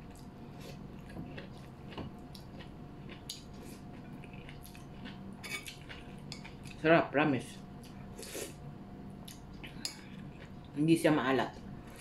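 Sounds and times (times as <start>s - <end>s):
person chewing: 0.0s - 6.8s, 7.8s - 8.6s, 9.2s - 10.7s
faint steady hum: 0.0s - 12.0s.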